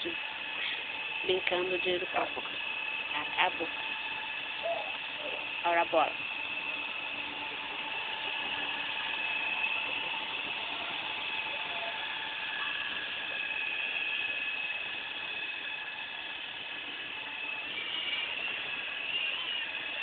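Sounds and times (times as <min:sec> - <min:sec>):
model helicopter motor whining: 0:00.0 - 0:20.0.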